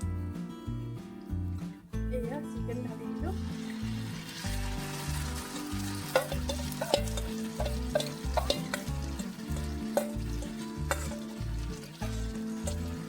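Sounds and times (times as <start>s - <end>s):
chicken sizzling in hot oil: 3.1s - 13.0s
spatula scraping pan: 3.7s - 13.0s.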